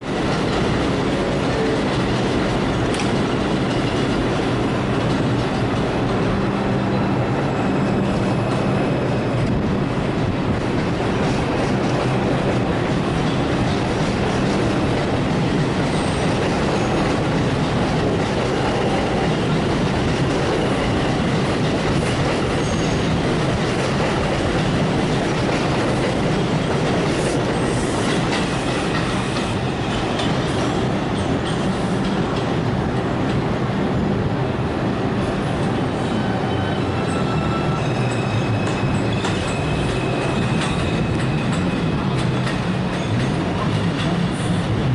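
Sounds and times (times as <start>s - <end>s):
subway train rumbling on rails: 0.0s - 44.9s
wheels clicking over rail joints: 0.2s - 6.5s, 38.0s - 44.4s
high wheel squeals: 22.5s - 23.1s, 36.0s - 42.0s.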